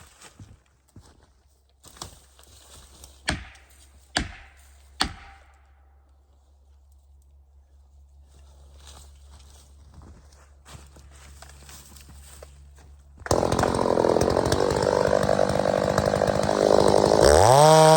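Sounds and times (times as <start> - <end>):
tool striking wood: 3.3 - 5.6, 13.3 - 17.9.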